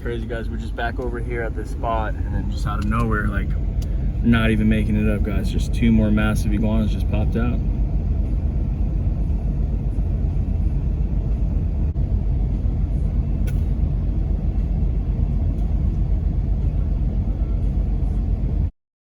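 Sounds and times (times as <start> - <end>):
low rumble: 0.0 - 18.7
faint click: 13.4 - 13.7.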